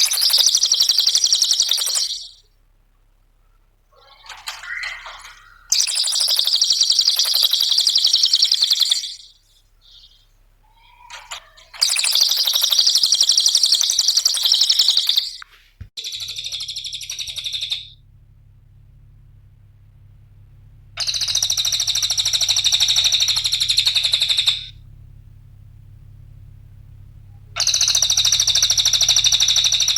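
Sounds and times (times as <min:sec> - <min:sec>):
songbird chattering trills: 0:00.0 - 0:02.5, 0:03.9 - 0:15.4, 0:16.0 - 0:17.9, 0:21.0 - 0:24.7, 0:27.6 - 0:29.9.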